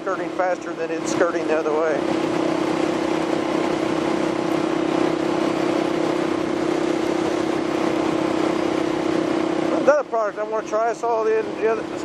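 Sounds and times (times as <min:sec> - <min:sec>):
motorcycle engine cruising: 0:01.0 - 0:10.1.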